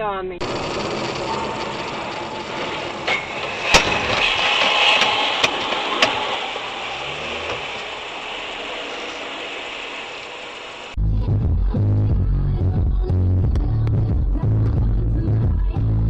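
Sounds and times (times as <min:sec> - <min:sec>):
vehicle road and engine noise: 0:00.4 - 0:11.0.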